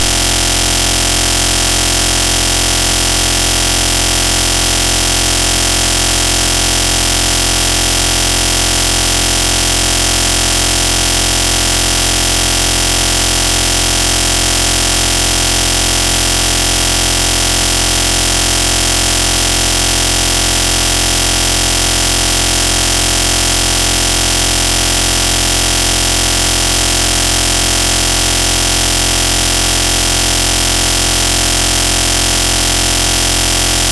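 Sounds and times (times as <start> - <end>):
loud steady hiss: 0.0 - 0.8.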